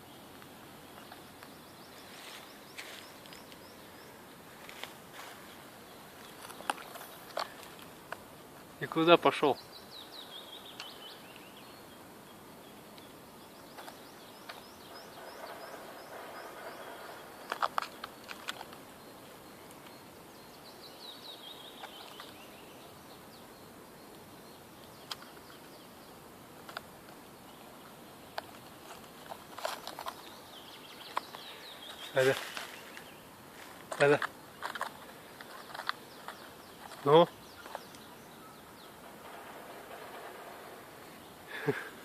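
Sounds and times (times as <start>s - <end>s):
small bird chirping: 8.9s - 26.2s, 27.3s - 33.4s, 34.0s - 42.0s
light clicks and rustles: 15.5s - 18.9s, 28.3s - 38.1s.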